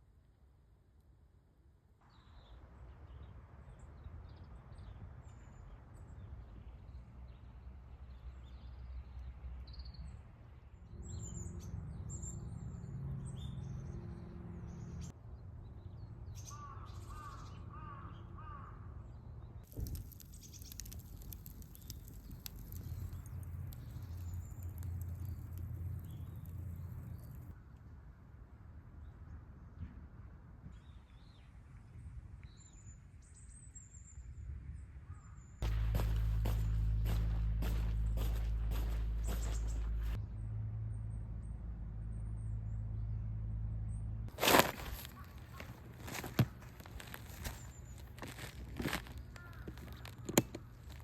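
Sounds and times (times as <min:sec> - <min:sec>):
small birds chirping: 0:19.5 - 0:27.6, 0:35.2 - 0:40.2, 0:44.3 - 0:51.0
low steady rumble: 0:35.6 - 0:51.0.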